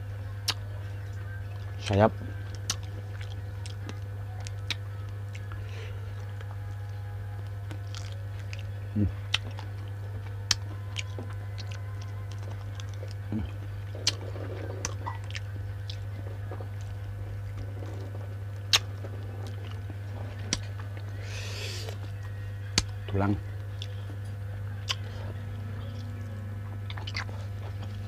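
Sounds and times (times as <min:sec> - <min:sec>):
low electrical hum: 0:00.0 - 0:28.0
person chewing meat off bones: 0:02.5 - 0:06.7, 0:07.4 - 0:23.0, 0:26.8 - 0:28.0.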